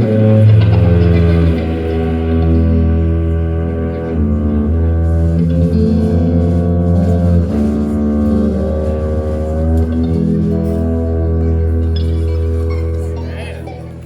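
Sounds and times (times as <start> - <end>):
band playing: 0.0 - 14.0
bass line: 0.0 - 14.0
guitar: 0.0 - 14.0.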